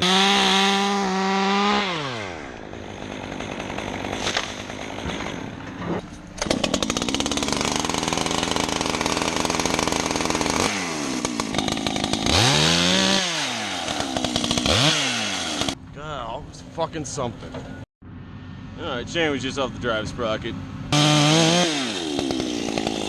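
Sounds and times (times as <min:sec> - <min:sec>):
chainsaw revving: 0:00.0 - 0:05.6, 0:06.4 - 0:15.8, 0:20.9 - 0:23.0.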